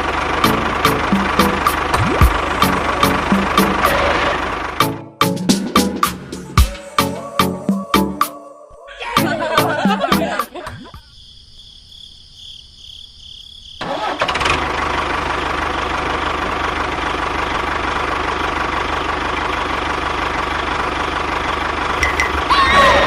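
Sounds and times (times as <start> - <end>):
small tractor engine running: 0.0 - 5.2, 13.8 - 23.0.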